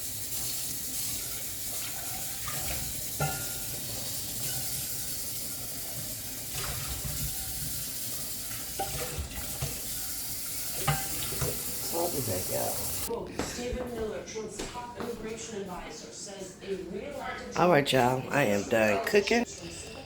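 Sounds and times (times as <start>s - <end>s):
tap water running: 0.0s - 13.1s.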